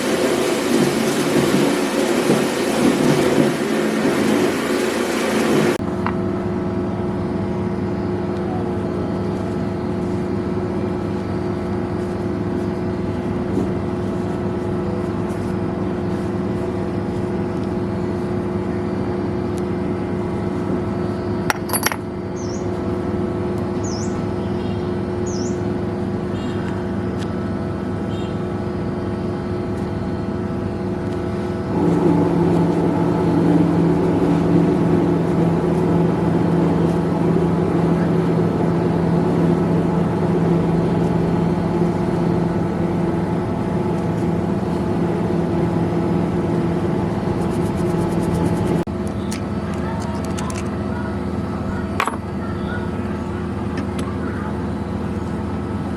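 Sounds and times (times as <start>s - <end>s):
motor humming: 0.0s - 6.5s.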